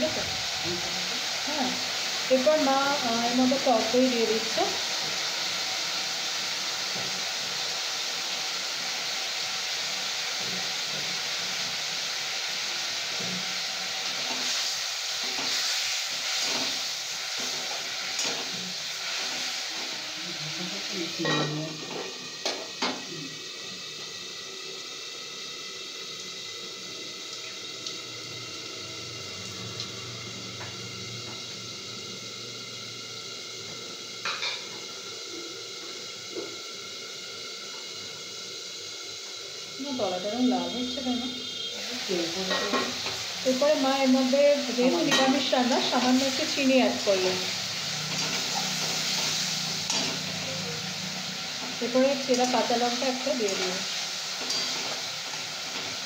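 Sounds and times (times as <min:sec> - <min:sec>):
food sizzling in a wok: 0:00.0 - 0:56.0.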